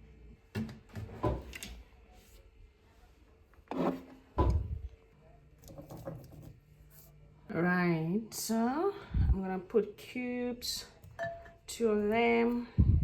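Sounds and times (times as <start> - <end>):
kitchen containers and utensils knocking: 11.0 - 11.7.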